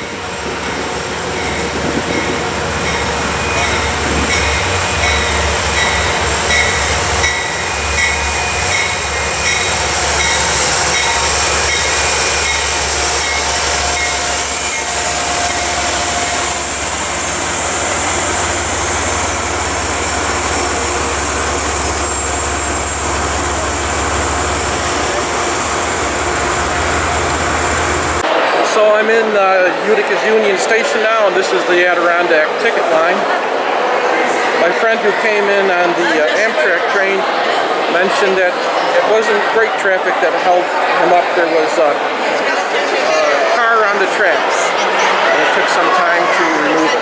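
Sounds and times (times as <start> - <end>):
wheels squealing: 0.0 - 28.2
train cars running over rails: 0.0 - 47.0.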